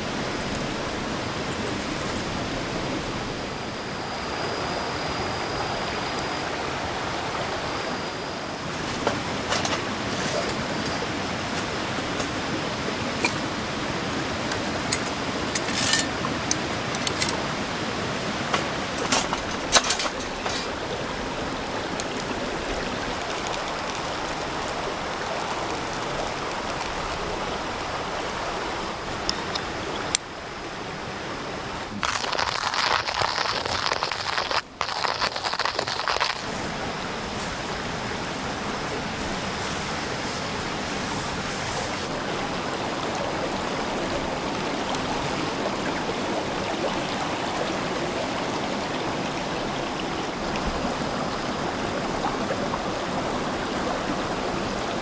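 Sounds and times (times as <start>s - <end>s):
fire popping and crackling: 32.0s - 41.6s
wood fire hissing: 32.0s - 42.1s.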